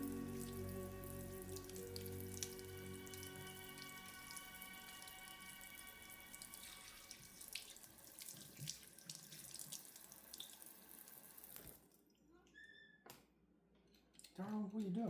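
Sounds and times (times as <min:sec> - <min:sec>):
water running from a tap: 0:00.0 - 0:11.9.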